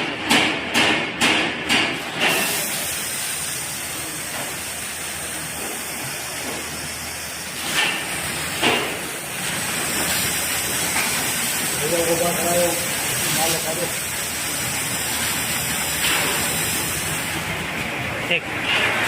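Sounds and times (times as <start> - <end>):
short air bursts: 2.2 - 4.7
compressed air hissing: 2.2 - 14.7.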